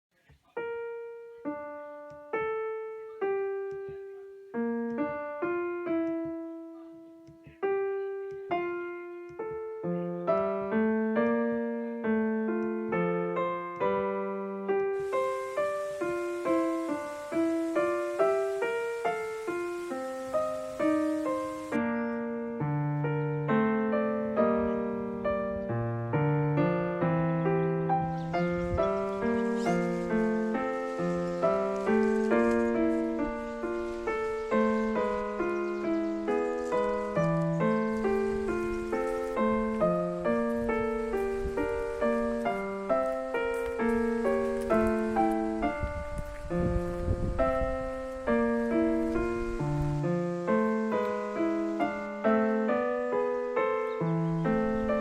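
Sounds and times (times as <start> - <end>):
faint steady hiss: 0.1 - 55.0
solo piano music: 0.2 - 55.0.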